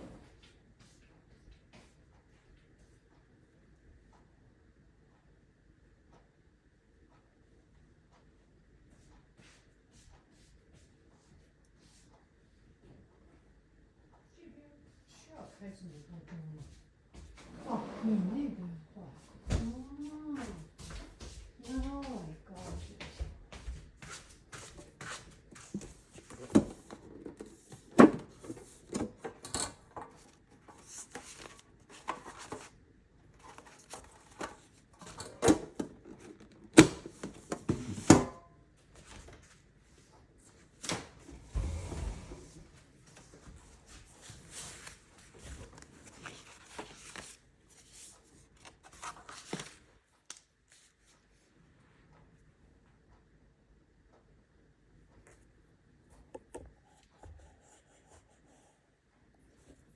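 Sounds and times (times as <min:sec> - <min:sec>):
packaging rustling: 0:44.5 - 0:48.0.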